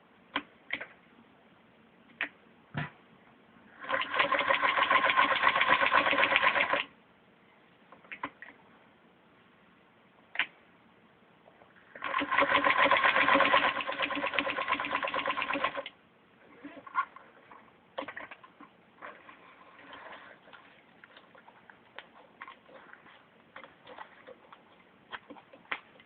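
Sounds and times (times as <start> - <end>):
sewing machine clattering: 3.8 - 6.8, 11.9 - 15.9.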